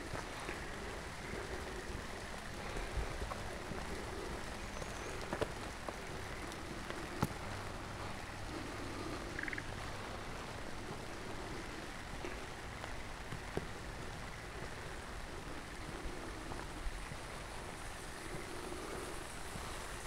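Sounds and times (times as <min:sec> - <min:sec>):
rapidly pulsed animal call: 0:00.0 - 0:12.6
steady rain falling: 0:00.0 - 0:20.0.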